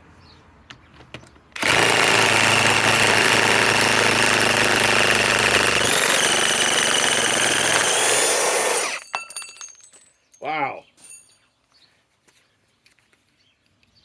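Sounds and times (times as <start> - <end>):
impact wrench hammering: 1.6 - 9.5.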